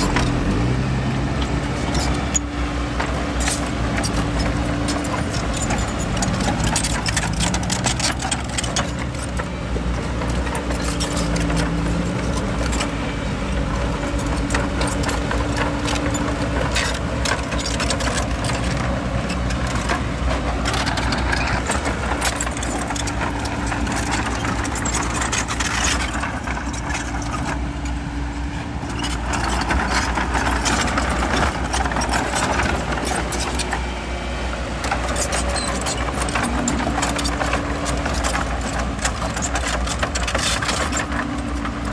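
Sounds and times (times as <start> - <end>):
bulldozer diesel engine running: 0.0 - 41.9
tracks clanking and rattling: 0.0 - 41.9.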